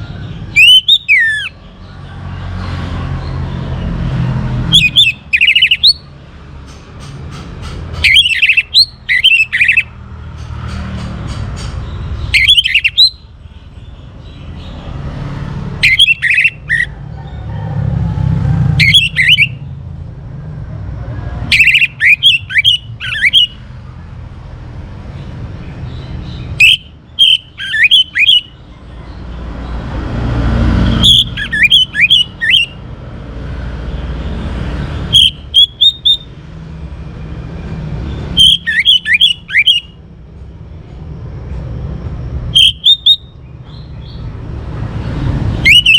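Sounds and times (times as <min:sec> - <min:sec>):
thrush singing: 0:00.0 - 0:01.9, 0:02.8 - 0:06.2, 0:15.6 - 0:17.2, 0:17.8 - 0:19.7, 0:26.1 - 0:32.9, 0:38.2 - 0:40.0, 0:45.5 - 0:45.9
passing traffic rumble: 0:00.0 - 0:45.9.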